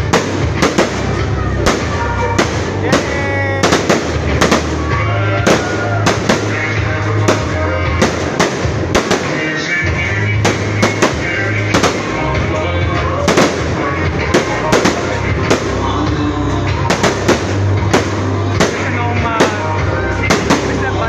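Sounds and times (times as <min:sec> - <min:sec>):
fireworks bangs: 0:00.0 - 0:21.0
loud music with heavy bass: 0:00.0 - 0:21.0.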